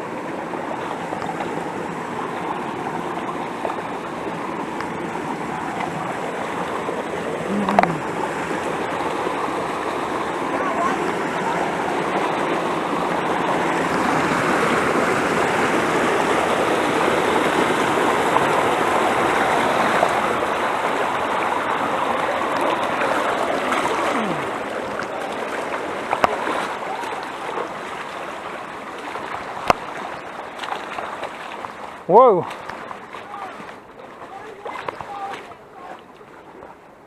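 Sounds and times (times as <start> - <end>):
water rushing in stream: 0.0 - 37.0.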